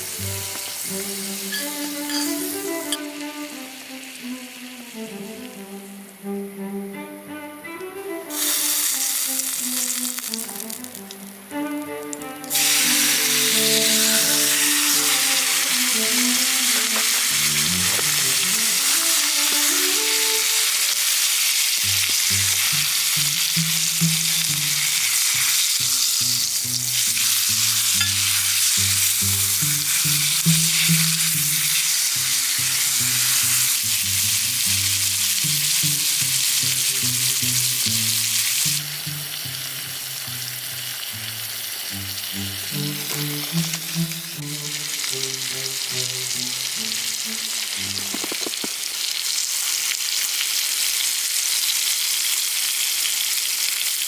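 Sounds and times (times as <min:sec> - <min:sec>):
food sizzling in a pan: 0:00.0 - 0:05.6, 0:08.3 - 0:11.3, 0:12.5 - 0:54.0
background music: 0:00.0 - 0:48.6.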